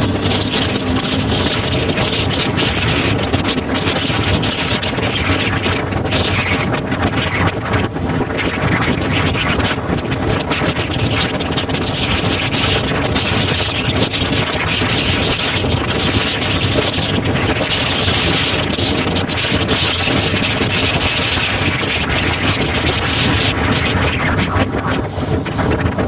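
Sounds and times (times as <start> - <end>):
motorcycle engine: 0.0 - 26.0
wind buffeting microphone: 0.0 - 26.0.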